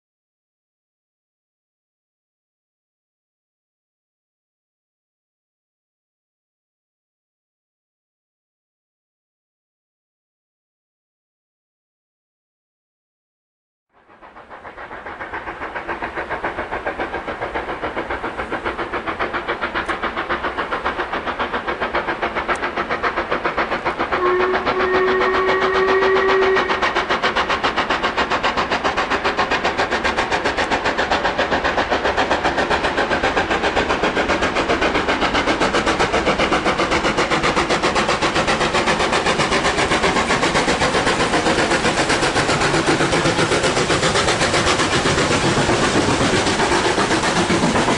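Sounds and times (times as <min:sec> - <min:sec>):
steam locomotive exhaust beating: 0:13.9 - 0:47.9
steam whistle: 0:24.2 - 0:27.0.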